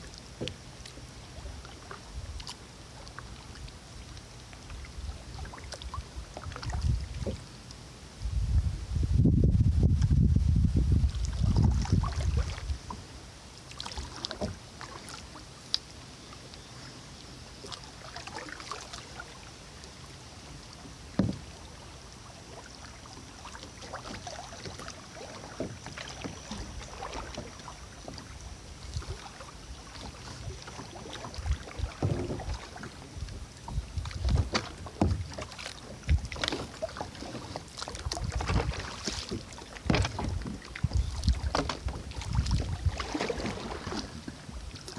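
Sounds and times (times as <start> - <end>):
kayak paddle splashing in water: 0.0 - 8.0, 11.0 - 44.9
wind rumbling on microphone: 4.7 - 7.5, 8.1 - 13.0, 25.4 - 44.9.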